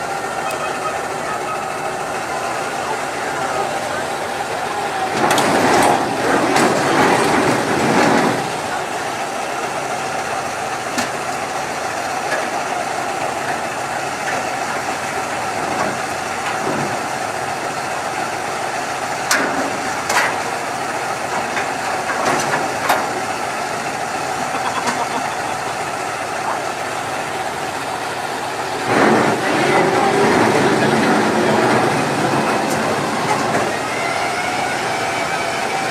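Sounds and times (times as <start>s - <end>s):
truck engine running: 0.0s - 35.9s
sharp clicks and knocks: 21.3s - 23.2s.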